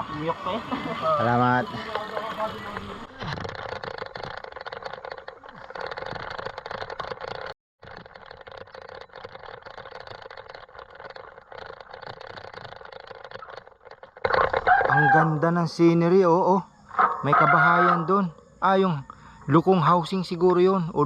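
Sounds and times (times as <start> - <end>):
bike rattles and clicks: 0.0 - 15.9
bike tyre rumble: 0.0 - 15.9.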